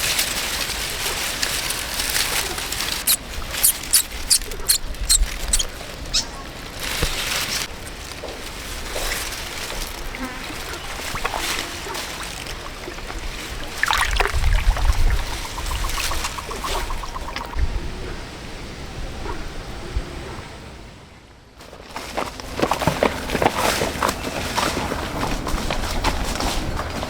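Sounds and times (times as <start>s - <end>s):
water pouring: 9.1s - 17.6s
water trickling: 9.3s - 17.6s
short sharp water splashes: 9.5s - 17.6s.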